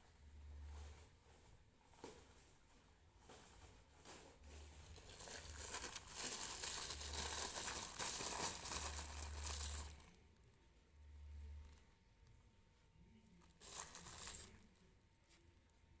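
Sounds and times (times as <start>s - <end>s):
packet crinkling and rustling: 4.7s - 10.2s, 13.4s - 14.8s.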